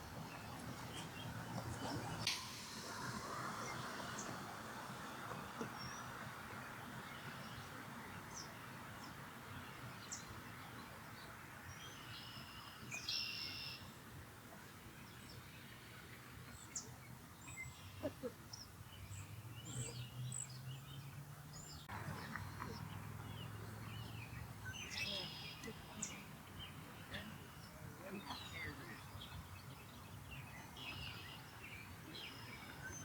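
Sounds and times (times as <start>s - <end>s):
outdoor background hiss: 0.0s - 33.0s
low hum: 1.5s - 6.0s
bird chirps: 12.0s - 13.8s.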